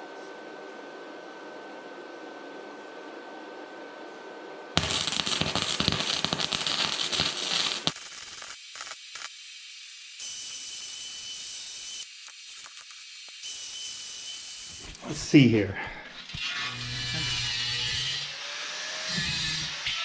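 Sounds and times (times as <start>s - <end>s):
welding arc crackling: 4.8s - 15.0s.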